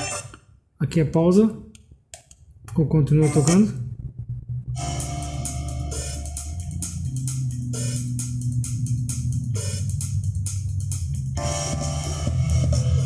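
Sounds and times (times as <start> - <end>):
heavy bass line: 2.6 - 13.0
drum beat: 4.8 - 11.2.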